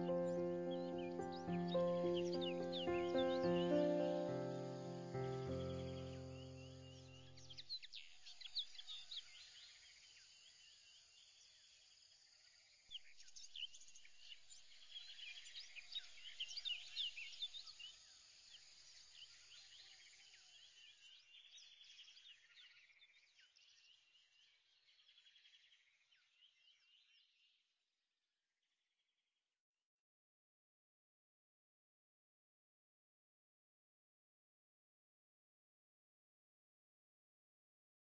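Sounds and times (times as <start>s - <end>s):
faint birdsong with trills: 0.0s - 11.8s, 12.9s - 27.6s.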